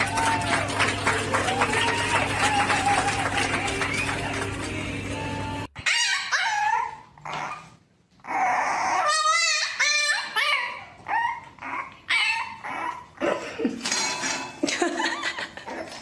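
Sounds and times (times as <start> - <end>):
dog whining and yelping: 5.8 - 13.2.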